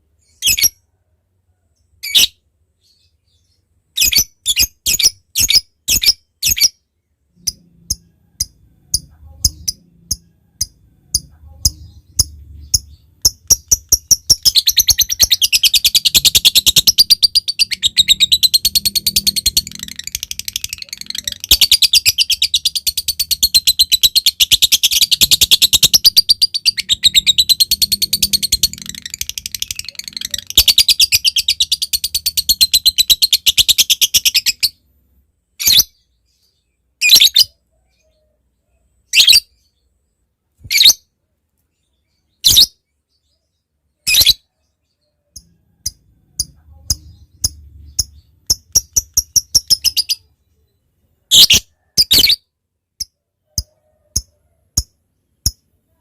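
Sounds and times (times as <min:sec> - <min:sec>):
lovebird chattering: 0:07.4 - 0:34.8, 0:45.4 - 0:50.3
quick ticking bird notes: 0:45.4 - 0:50.2.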